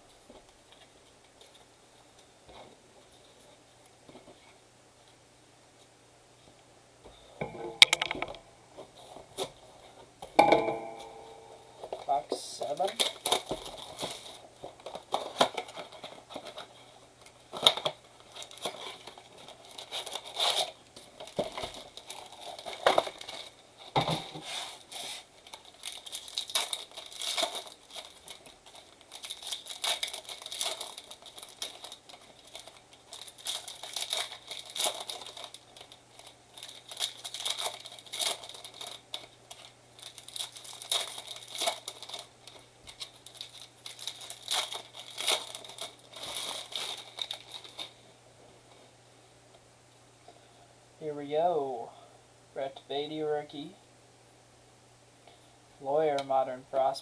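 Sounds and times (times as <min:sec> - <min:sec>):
wrappers tearing and crinkling: 0:11.5 - 0:48.8.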